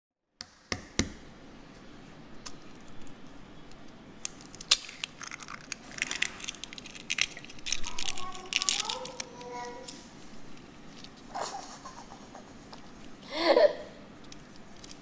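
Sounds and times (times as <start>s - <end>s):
kitchen items clicking and crackling: 2.4s - 11.8s.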